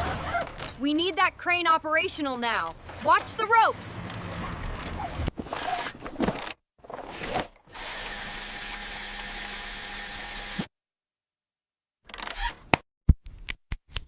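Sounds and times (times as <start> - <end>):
power drill running: 7.7 - 10.7, 12.2 - 12.6.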